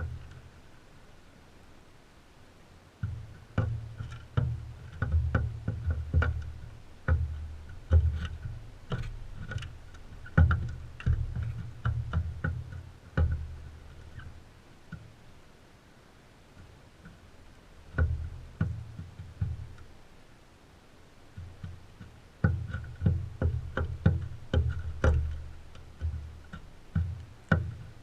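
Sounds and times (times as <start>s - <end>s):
knocks and thumps: 3.0s - 14.3s, 17.9s - 19.9s, 21.4s - 28.0s.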